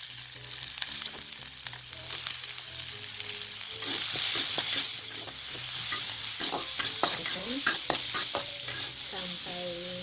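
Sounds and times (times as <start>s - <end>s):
onion sizzling in hot oil: 0.0s - 10.0s
utensil scraping a pan: 3.8s - 9.1s.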